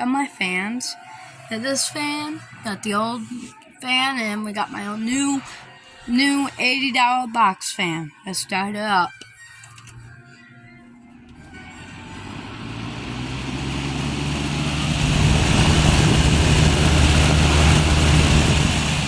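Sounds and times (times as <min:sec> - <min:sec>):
box fan motor hum: 0:09.8 - 0:19.0
air rushing from fan blades: 0:11.3 - 0:19.0.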